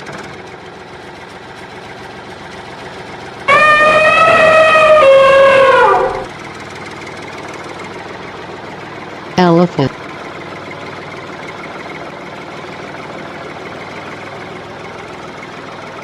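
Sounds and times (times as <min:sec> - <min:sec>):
elephant trumpeting: 0:03.5 - 0:06.3.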